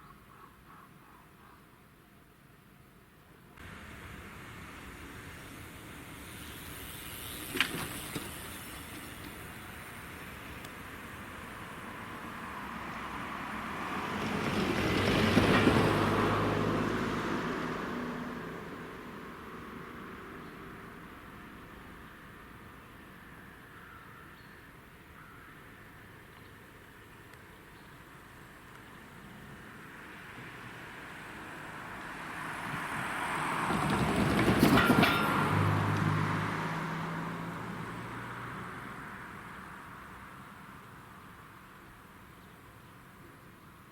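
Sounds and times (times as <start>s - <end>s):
train passing: 3.6s - 23.6s, 28.3s - 40.4s
wheels clattering over rail joints: 4.7s - 12.3s, 14.2s - 16.4s, 32.6s - 36.8s.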